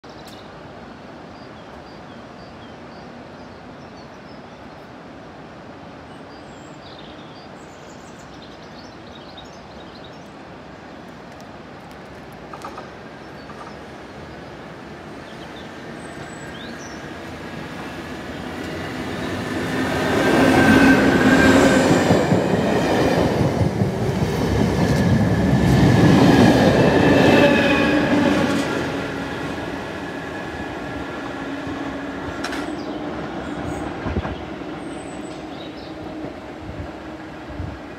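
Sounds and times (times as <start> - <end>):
faint birdsong: 6.0 - 11.0, 12.6 - 23.4, 28.2 - 37.9
train passing rumble: 11.6 - 37.9.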